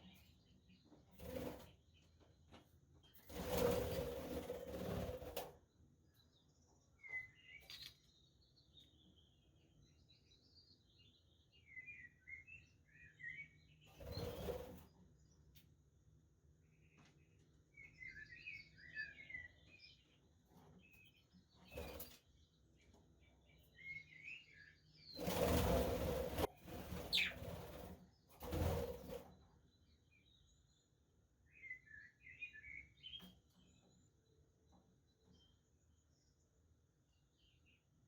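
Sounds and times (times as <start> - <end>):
budgerigars chirping: 27.1 - 27.4.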